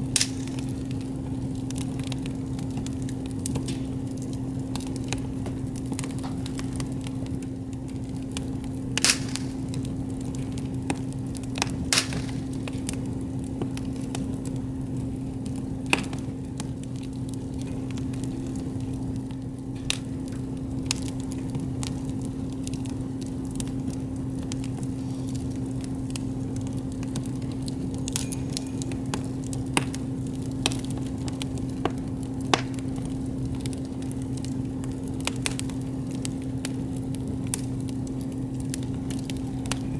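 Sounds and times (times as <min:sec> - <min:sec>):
wood campfire crackling: 0:00.0 - 0:39.9.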